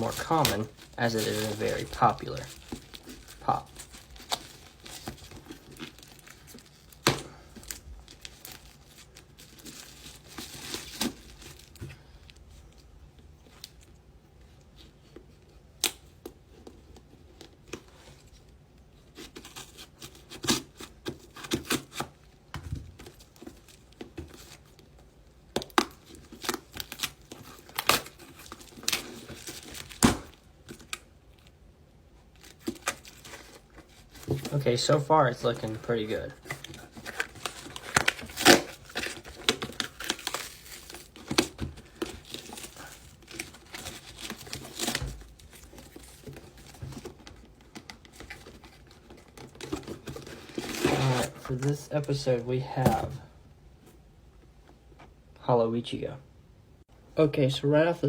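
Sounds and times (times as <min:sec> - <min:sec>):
packaging tearing and crinkling: 0:00.0 - 0:11.8, 0:19.2 - 0:22.2, 0:25.6 - 0:31.5, 0:32.4 - 0:52.2.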